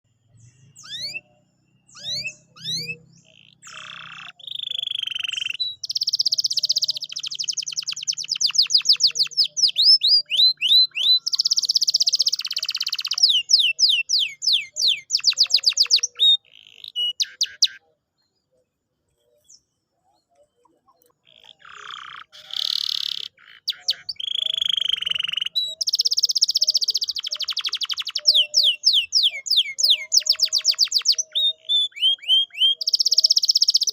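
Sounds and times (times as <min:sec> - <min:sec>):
canary singing: 0:00.4 - 0:33.9.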